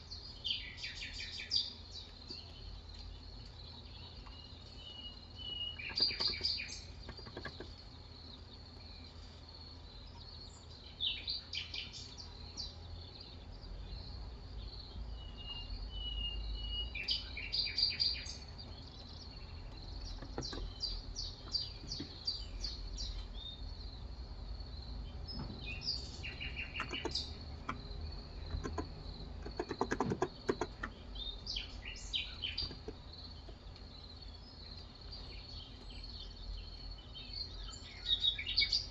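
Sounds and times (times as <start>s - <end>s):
birds chirping: 0.0s - 38.9s
whistled bird notes: 15.2s - 18.4s.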